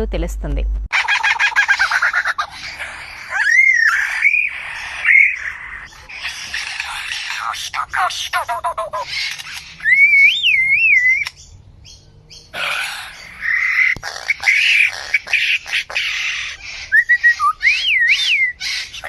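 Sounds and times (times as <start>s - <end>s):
bird rasping calls: 0.9s - 11.4s, 12.3s - 19.0s
bird warbling whistle: 3.4s - 5.6s, 9.4s - 11.4s, 16.6s - 18.9s.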